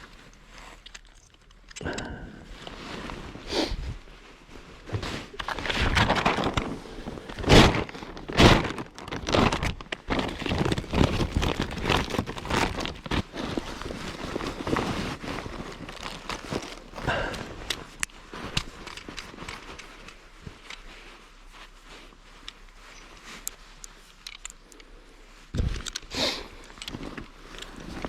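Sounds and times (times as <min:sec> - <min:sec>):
rustling and crinkling: 0:00.0 - 0:28.0.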